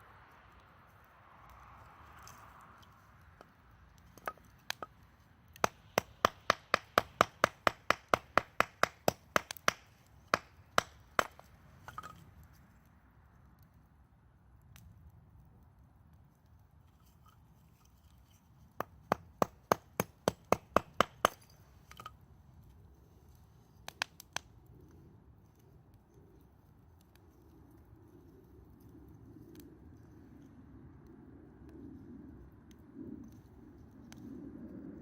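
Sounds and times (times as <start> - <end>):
hatchet chopping firewood: 3.4 - 12.2, 18.6 - 22.2.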